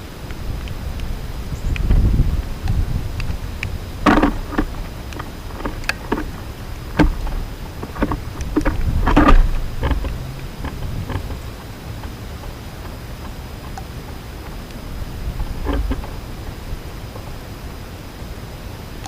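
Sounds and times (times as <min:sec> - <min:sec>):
wind buffeting microphone: 0:00.0 - 0:19.0
sharp clicks and knocks: 0:01.7 - 0:16.3
clattering bursts: 0:04.0 - 0:13.8, 0:15.3 - 0:16.2.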